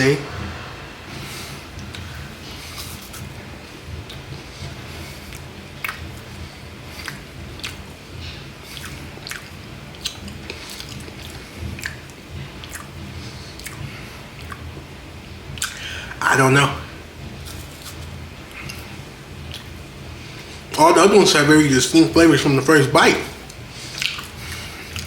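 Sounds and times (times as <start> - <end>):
person chewing crunchy wafer: 5.2 - 7.9, 8.6 - 12.9, 23.8 - 25.0.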